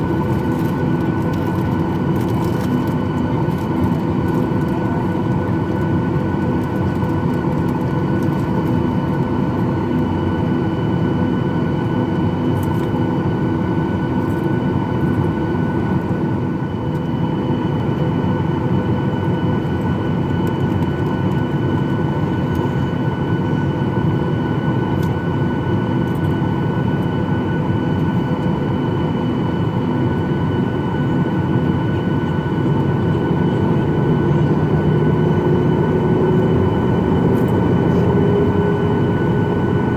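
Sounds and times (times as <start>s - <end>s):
airplane cabin engine noise: 0.0s - 39.9s.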